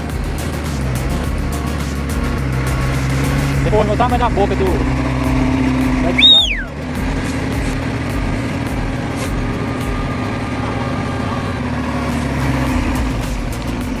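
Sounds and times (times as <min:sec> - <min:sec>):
heavy vehicle engine droning: 0:00.0 - 0:14.0.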